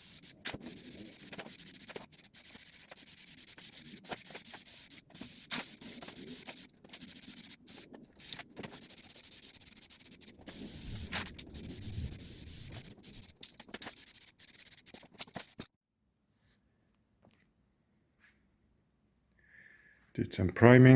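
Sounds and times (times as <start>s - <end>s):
sanding scraping hiss: 0.0s - 15.7s.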